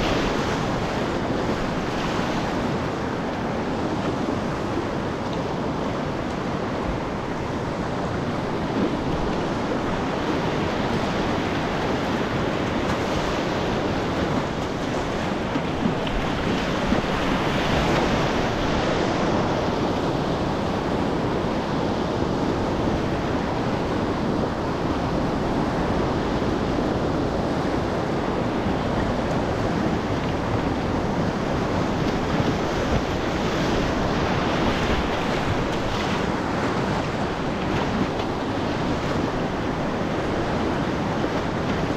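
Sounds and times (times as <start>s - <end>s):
rushing whitewater: 0.0s - 41.9s
wind buffeting microphone: 0.0s - 41.9s.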